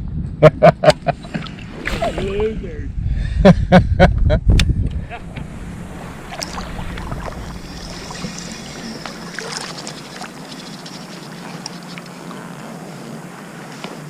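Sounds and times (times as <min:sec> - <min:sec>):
wind noise: 0:00.0 - 0:12.0
low boat hum: 0:04.8 - 0:14.0.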